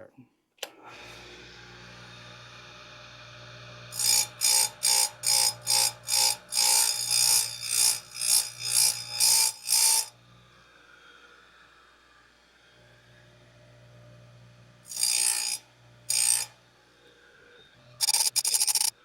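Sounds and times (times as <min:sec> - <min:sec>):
file sharpening chainsaw chain: 0:18.0 - 0:18.9.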